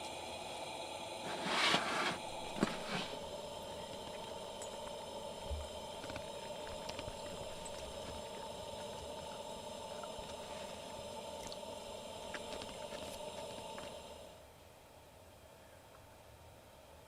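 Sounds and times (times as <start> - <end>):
campfire crackling and popping: 2.2 - 14.2.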